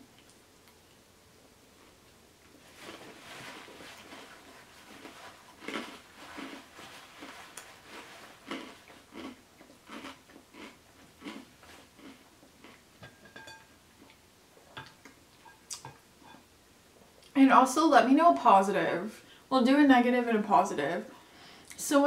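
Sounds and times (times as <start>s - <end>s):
person chewing food: 1.8s - 13.2s.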